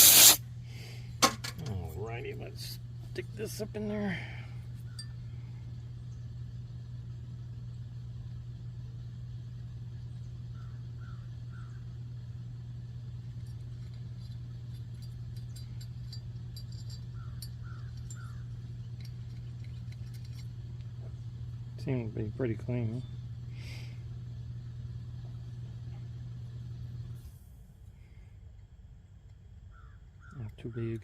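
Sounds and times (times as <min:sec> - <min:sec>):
small parts clicking: 0:00.0 - 0:00.4, 0:13.4 - 0:20.9
low hum: 0:00.0 - 0:30.2.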